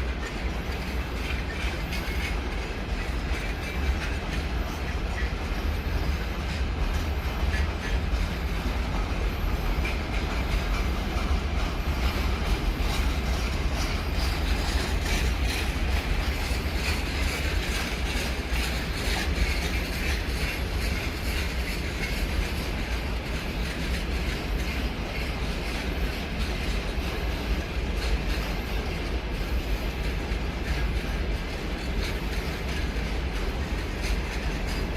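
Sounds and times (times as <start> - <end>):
train wheels rumbling on rails: 0.0 - 34.9.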